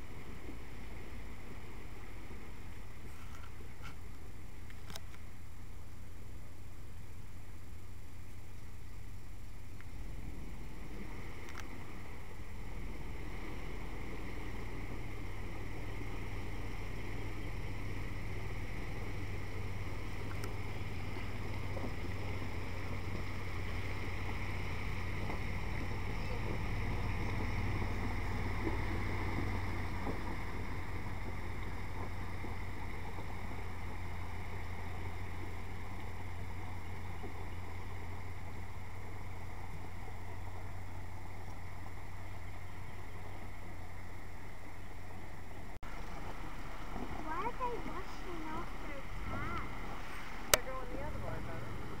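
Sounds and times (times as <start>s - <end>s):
road noise: 0.0s - 52.0s
vehicle engine hum: 0.0s - 52.0s.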